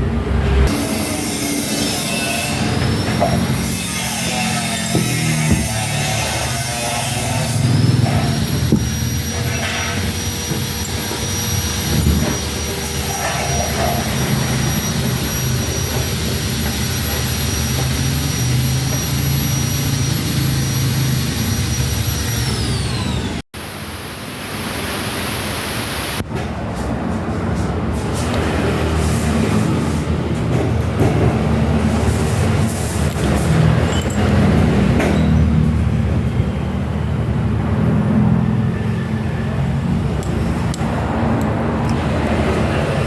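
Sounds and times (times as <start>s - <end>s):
demolition hammer motor whining: 0.7s - 23.4s.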